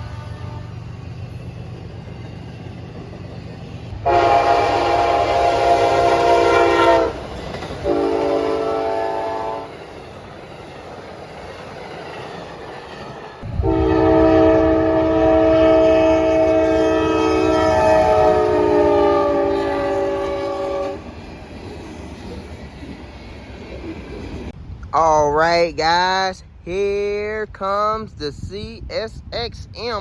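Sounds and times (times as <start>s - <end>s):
locomotive air horn blasts: 0.0s - 0.9s, 4.0s - 9.7s, 13.5s - 21.0s
low train rumble: 0.0s - 30.0s.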